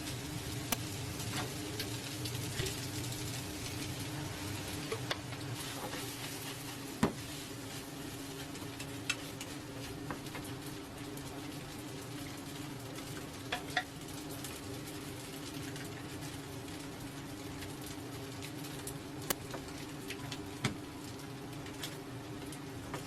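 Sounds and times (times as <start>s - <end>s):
steady low hum: 0.0s - 7.3s
food sizzling in a pan: 0.0s - 23.0s.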